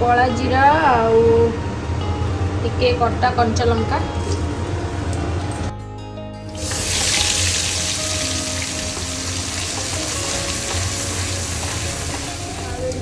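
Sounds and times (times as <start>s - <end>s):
spice paste sizzling in hot oil: 6.5s - 13.0s.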